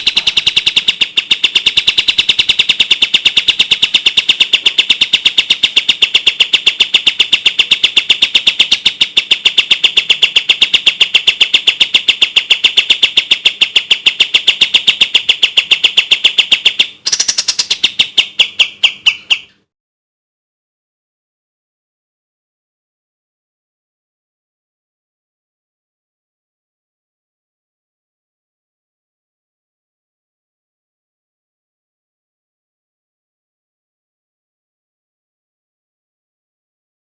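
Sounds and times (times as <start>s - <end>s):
bird singing rapid high notes: 0.0s - 19.7s.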